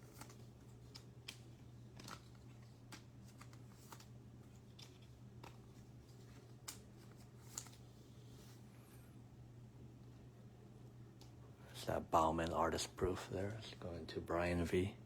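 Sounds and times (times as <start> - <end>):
trading cards flicking and tapping: 0.0 - 7.8
low steady hum: 0.0 - 15.0.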